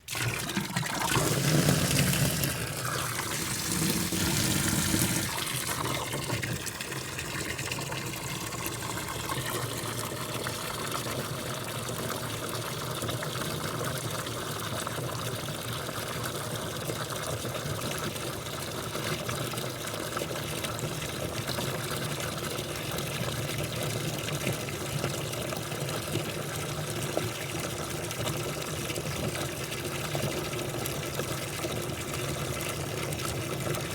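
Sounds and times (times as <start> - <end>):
water rushing in dishwasher: 0.0 - 15.1
low pump hum: 0.0 - 33.9.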